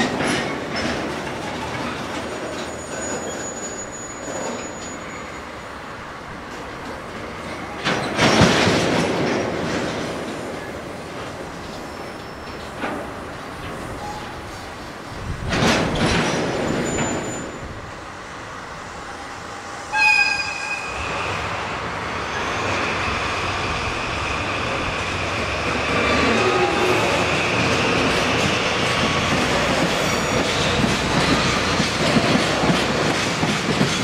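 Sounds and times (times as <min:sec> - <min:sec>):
diesel locomotive engines under load: 0:00.0 - 0:34.0
freight train rolling over track: 0:00.0 - 0:34.0
high wheel squeal: 0:02.6 - 0:05.8, 0:16.7 - 0:17.7, 0:19.9 - 0:21.4, 0:29.9 - 0:30.8.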